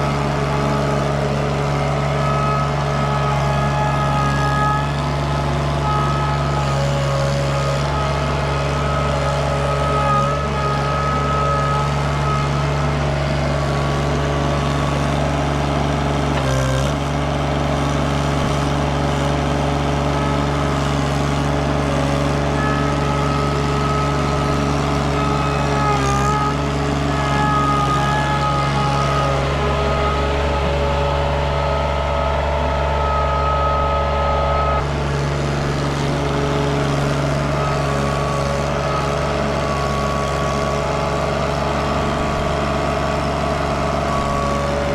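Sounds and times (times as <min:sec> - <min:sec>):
skid steer engine running: 0:00.0 - 0:44.9.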